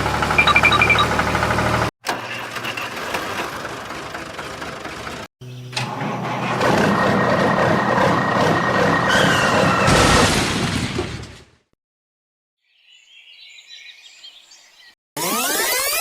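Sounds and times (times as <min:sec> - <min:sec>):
vehicle engine running: 0:00.0 - 0:01.9, 0:03.6 - 0:05.3.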